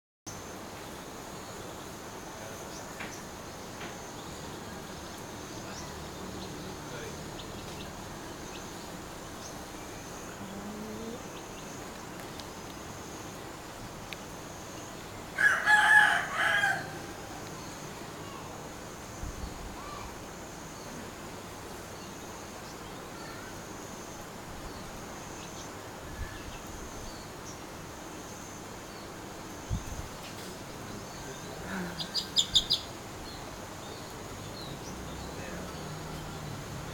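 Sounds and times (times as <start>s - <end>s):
rooster crowing: 15.4s - 17.4s.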